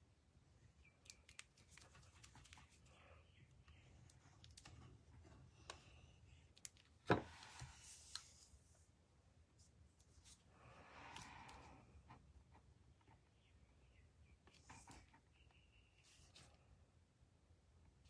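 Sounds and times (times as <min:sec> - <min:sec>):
paper rustle: 0:01.1 - 0:03.0.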